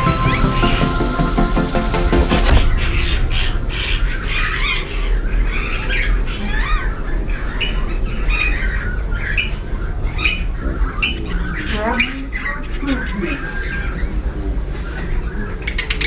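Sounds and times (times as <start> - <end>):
electronic music: 0.0 - 4.2.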